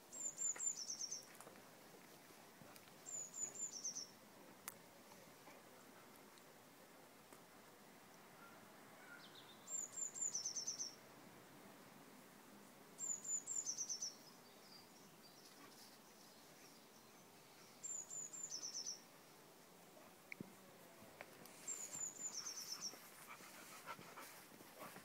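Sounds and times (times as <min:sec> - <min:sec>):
faint steady background noise: 0:00.0 - 0:25.0
songbird singing with trill: 0:00.1 - 0:01.3, 0:03.0 - 0:04.2, 0:08.4 - 0:11.0, 0:13.0 - 0:15.6, 0:16.7 - 0:19.1, 0:21.6 - 0:23.0.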